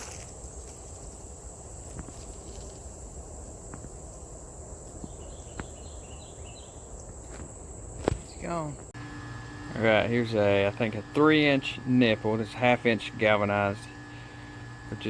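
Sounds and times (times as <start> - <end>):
high-pitched insect trill: 0.0 - 8.9.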